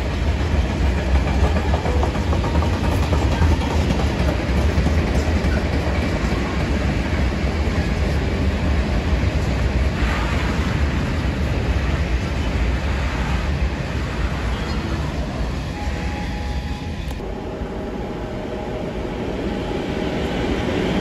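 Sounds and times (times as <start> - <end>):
freight train wheels rumbling: 0.0 - 21.0.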